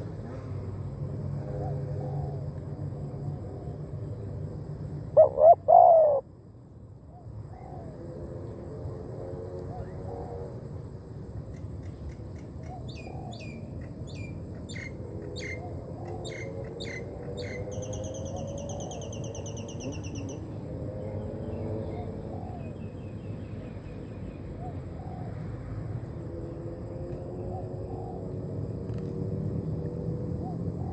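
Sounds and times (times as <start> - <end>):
songbird chirping: 11.5 - 30.9.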